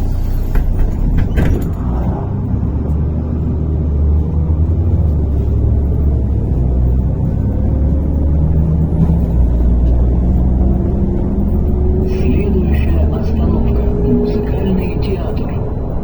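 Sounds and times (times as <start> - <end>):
bus engine and road rumble: 0.0 - 16.0
rattles and knocks: 0.2 - 12.1.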